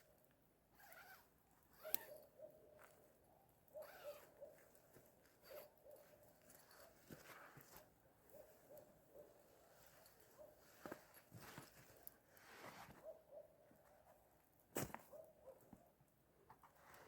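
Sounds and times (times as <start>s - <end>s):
soft clicks and rustles: 4.5s - 8.9s, 9.7s - 13.1s.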